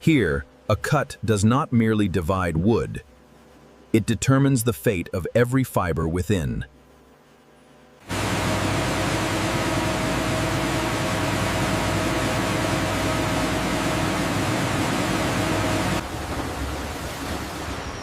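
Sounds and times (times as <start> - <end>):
sawmill machinery running: 8.1 - 18.0.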